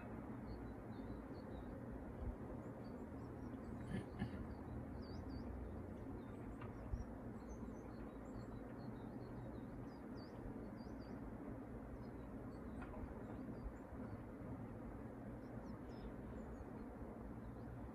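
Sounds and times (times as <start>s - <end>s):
faint bird chirps: 0.0s - 17.9s.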